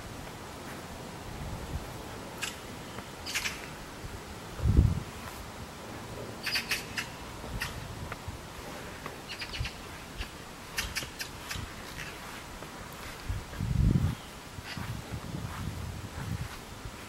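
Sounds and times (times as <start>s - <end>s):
small birds chirping: 2.4s - 3.8s, 6.4s - 7.8s, 9.0s - 13.1s.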